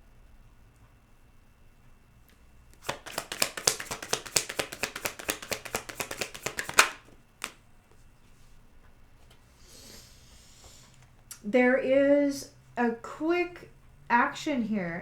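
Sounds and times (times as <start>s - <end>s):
cards being shuffled by hand: 2.7s - 8.0s.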